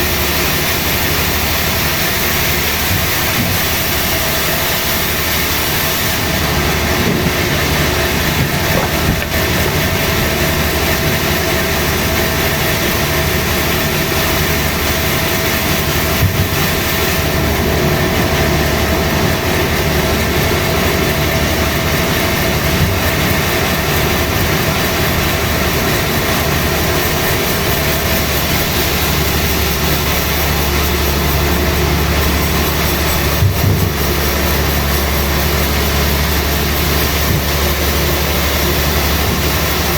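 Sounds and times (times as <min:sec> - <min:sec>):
sawmill saw cutting wood: 0:00.0 - 0:39.9
sharp knocks: 0:07.0 - 0:10.4.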